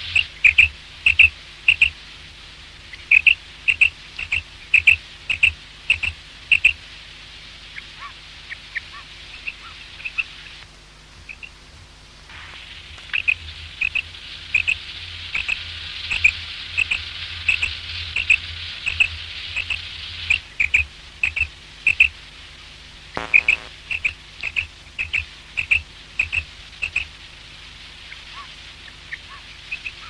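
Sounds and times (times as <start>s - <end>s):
quail calling: 0.0s - 2.0s, 2.9s - 6.8s, 7.8s - 10.4s, 11.3s - 11.6s, 13.1s - 14.8s, 15.4s - 22.1s, 23.2s - 27.1s, 28.2s - 30.0s
hiss: 12.2s - 22.1s
brief buzz: 23.2s - 27.0s.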